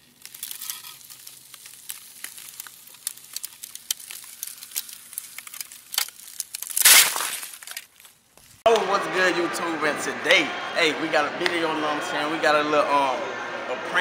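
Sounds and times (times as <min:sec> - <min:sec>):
crackling clicks and ticks: 0:00.0 - 0:06.8.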